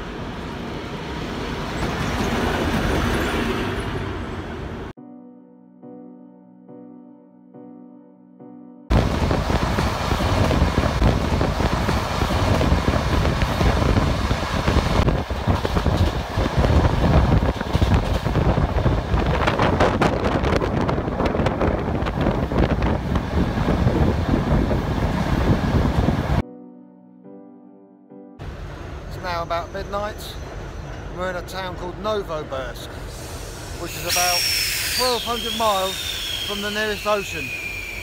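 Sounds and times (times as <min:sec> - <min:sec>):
passenger train running on track: 0:00.0 - 0:04.9, 0:08.9 - 0:26.4, 0:28.4 - 0:38.0
wind noise on microphone: 0:08.9 - 0:26.4.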